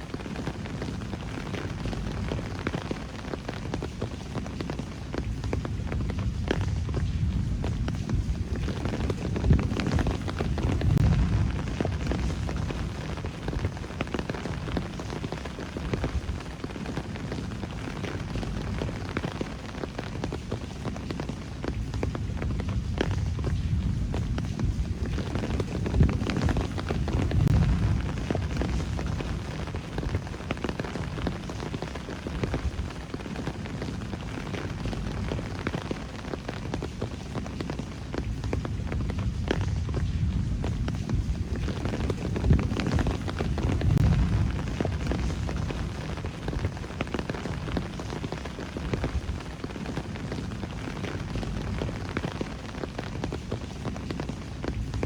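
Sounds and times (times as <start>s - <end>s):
rain pattering: 0.0s - 55.0s
low rumble: 5.6s - 14.9s, 21.8s - 31.2s, 38.3s - 47.9s.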